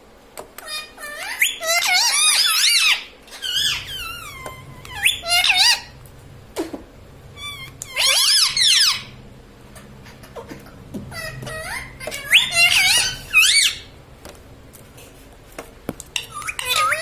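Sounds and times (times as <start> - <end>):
parakeet squeaky calls: 0.6 - 6.0, 7.3 - 9.2, 9.8 - 14.0, 16.1 - 17.0.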